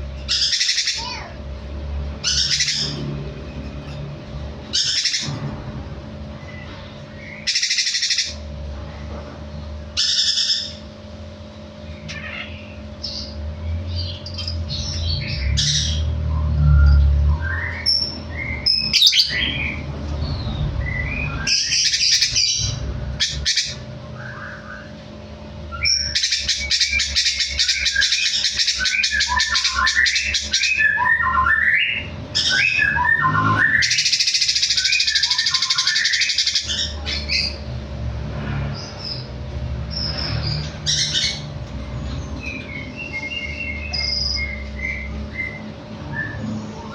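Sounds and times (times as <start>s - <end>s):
low hum: 0.0s - 46.9s
songbird singing and chattering: 25.8s - 37.6s, 42.4s - 45.7s.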